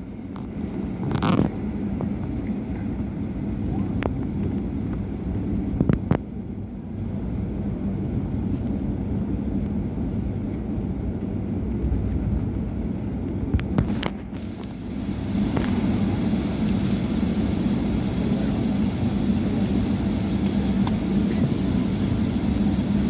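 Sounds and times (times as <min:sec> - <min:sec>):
airplane cabin low rumble: 0:00.0 - 0:23.0.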